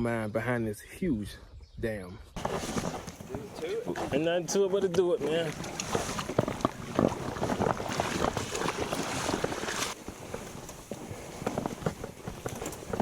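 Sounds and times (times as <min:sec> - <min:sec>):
water splashing: 0:05.2 - 0:10.0
kayak knocks: 0:05.4 - 0:10.4.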